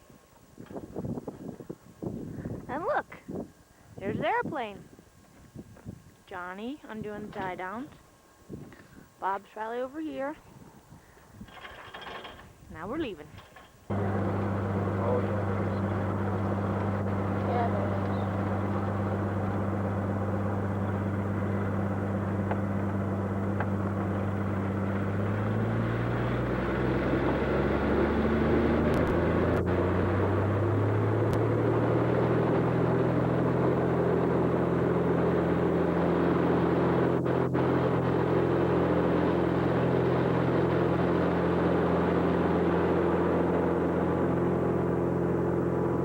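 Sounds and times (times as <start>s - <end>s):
light aircraft piston engine: 13.4s - 46.0s.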